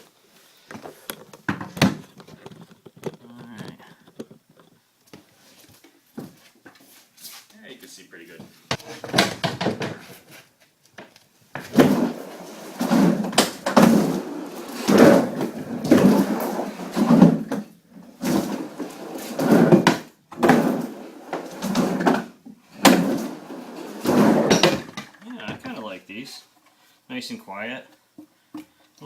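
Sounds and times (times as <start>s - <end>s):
skateboard wheels rolling on ramp: 11.6s - 25.7s.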